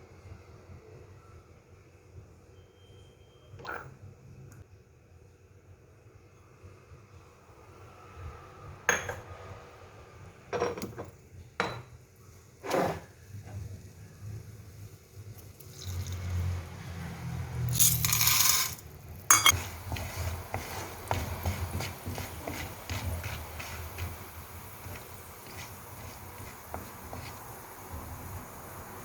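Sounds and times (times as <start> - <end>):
metallic clink: 17.7 - 19.6
popcorn popping: 17.7 - 29.0
hiss in a pan: 19.5 - 29.0.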